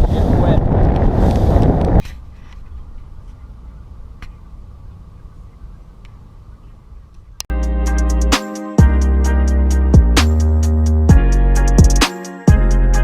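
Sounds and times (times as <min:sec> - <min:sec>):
wind buffeting microphone: 0:00.0 - 0:03.6.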